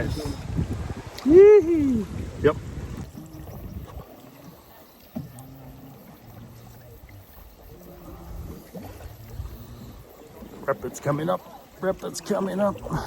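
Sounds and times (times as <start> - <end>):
water noise around canoe hull: 0.0 - 13.0
faint voices: 1.2 - 13.0.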